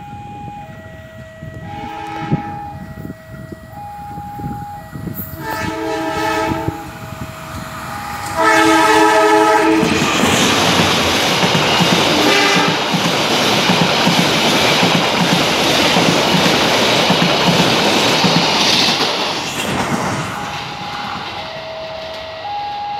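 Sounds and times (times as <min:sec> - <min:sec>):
passenger train rushing past: 0:00.0 - 0:22.9
train horn: 0:01.5 - 0:03.5, 0:05.2 - 0:07.1, 0:08.0 - 0:10.7, 0:12.1 - 0:12.9.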